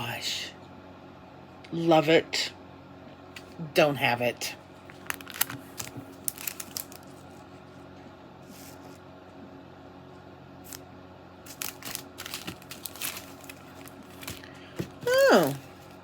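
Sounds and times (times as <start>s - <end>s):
packaging rustling: 4.9s - 7.4s, 11.5s - 16.0s.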